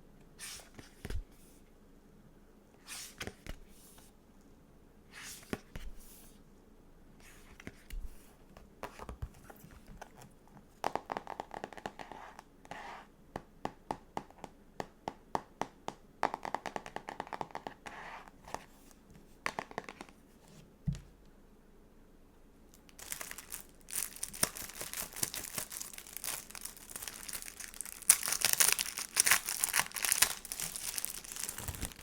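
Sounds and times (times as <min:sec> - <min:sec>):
rapid paper crackling: 0:23.0 - 0:32.0
stickers peeling and scratching: 0:24.3 - 0:32.0.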